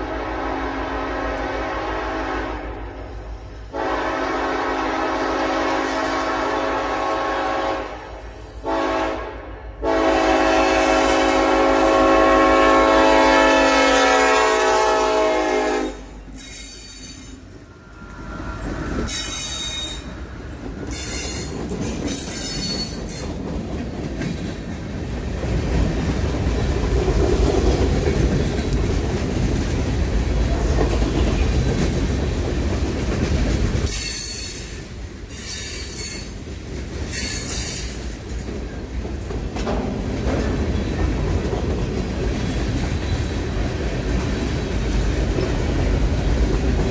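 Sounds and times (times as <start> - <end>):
locomotive air horn blasts: 0.0 - 2.8, 3.7 - 16.2
train rumbling past: 0.0 - 46.9
high-pitched wheel squeal: 19.1 - 20.2, 20.9 - 23.2.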